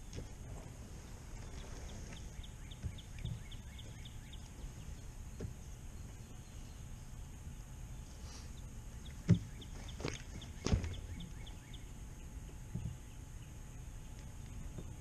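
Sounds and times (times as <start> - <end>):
low outdoor rumble: 0.0 - 15.0
small bird calling: 1.1 - 15.0
dull thumps: 9.2 - 11.3.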